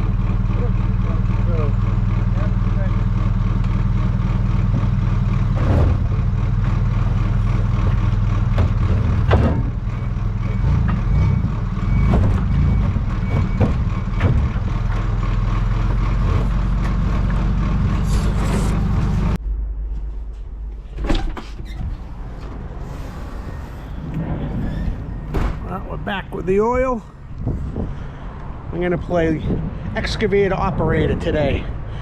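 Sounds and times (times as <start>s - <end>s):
truck engine running: 0.0s - 19.9s, 21.6s - 28.4s
sharp knocks and clunks: 5.5s - 6.8s, 7.7s - 15.2s, 24.1s - 26.5s.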